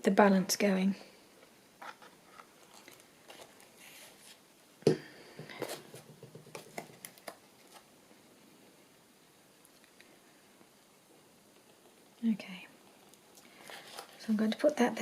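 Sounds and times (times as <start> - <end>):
paper pieces tapping and handling: 5.4 - 7.8.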